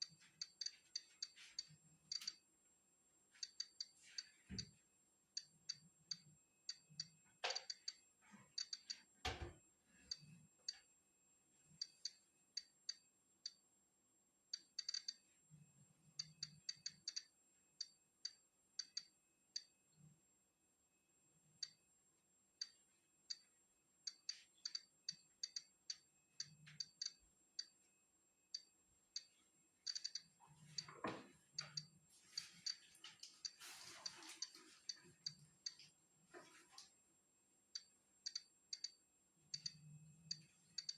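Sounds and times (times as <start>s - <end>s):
geiger counter clicking: 2.1s - 2.4s, 3.4s - 4.0s, 5.4s - 8.0s, 8.6s - 9.0s, 11.8s - 13.6s, 14.5s - 15.2s, 16.2s - 19.7s, 21.6s - 21.8s, 22.6s - 23.5s, 24.1s - 27.8s, 28.5s - 30.9s, 37.7s - 40.9s.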